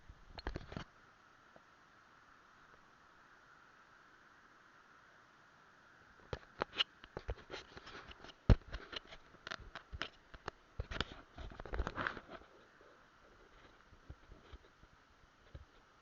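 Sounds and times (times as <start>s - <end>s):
faint hiss: 0.0s - 16.0s
rustling: 6.2s - 16.0s.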